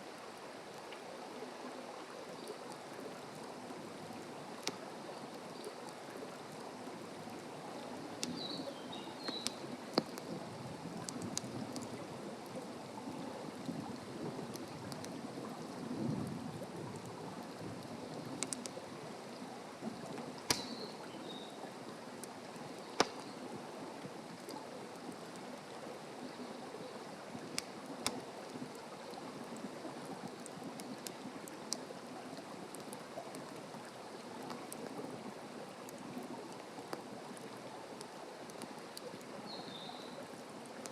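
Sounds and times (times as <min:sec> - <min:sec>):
campfire crackling and popping: 0:02.1 - 0:39.7, 0:40.3 - 0:40.9
bird chirping: 0:08.4 - 0:09.6, 0:20.5 - 0:21.6.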